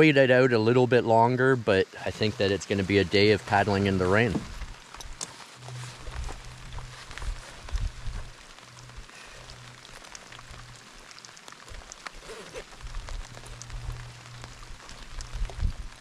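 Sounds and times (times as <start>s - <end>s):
rain drops ticking: 0.0s - 16.0s
low rumble: 2.1s - 11.1s, 12.6s - 16.0s.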